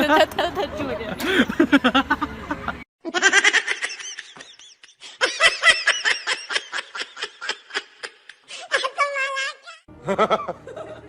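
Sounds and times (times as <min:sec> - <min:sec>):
high-pitched laughing: 0:01.2 - 0:10.9.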